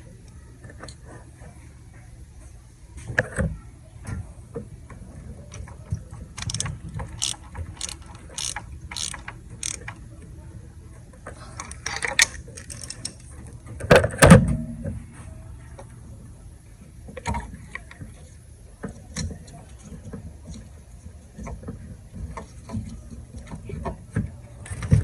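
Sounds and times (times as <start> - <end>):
ratchet clicking: 6.4 - 10.0.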